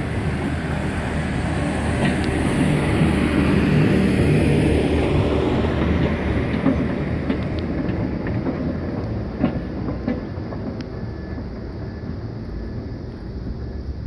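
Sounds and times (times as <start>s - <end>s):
freight train rumble: 0.0s - 14.0s
sharp rail clicks: 1.9s - 3.0s, 5.6s - 11.0s.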